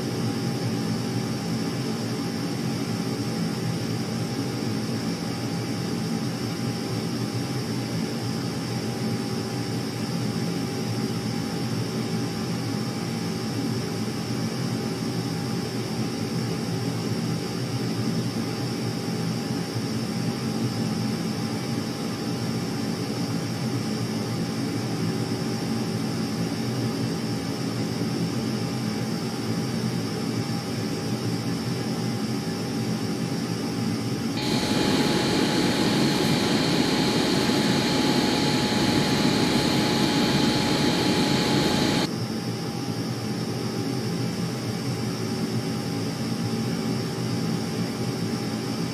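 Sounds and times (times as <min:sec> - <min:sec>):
aircraft engine whine: 0:34.4 - 0:42.1.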